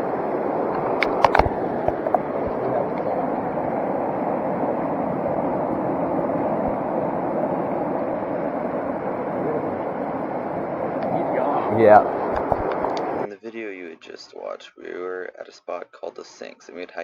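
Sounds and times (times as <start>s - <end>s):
creek water flowing: 0.0s - 13.3s.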